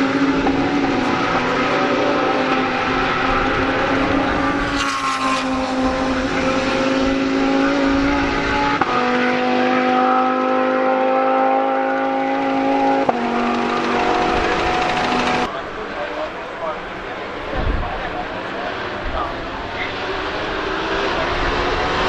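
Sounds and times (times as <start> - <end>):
gear upshifts: 0.0 - 15.5
race car engine accelerating: 0.0 - 22.0.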